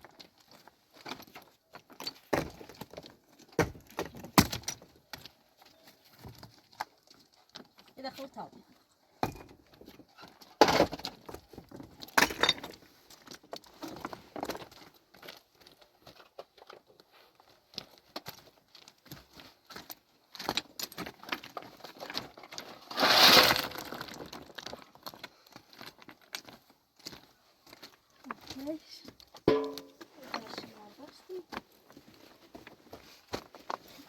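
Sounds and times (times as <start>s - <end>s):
hard objects clinking and knocking: 29.5s - 30.1s.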